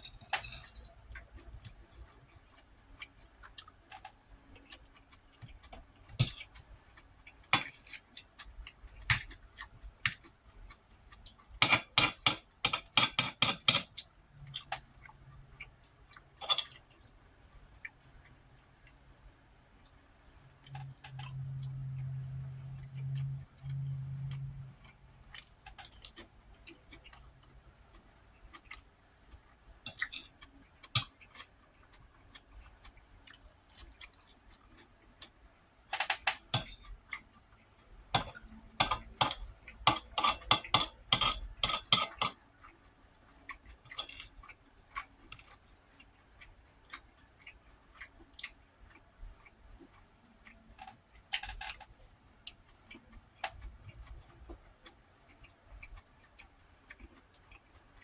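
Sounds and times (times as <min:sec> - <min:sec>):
chewing: 0:00.0 - 0:11.8, 0:19.8 - 0:35.4, 0:36.1 - 0:58.0
utensil scraping on plate: 0:38.2 - 0:42.4.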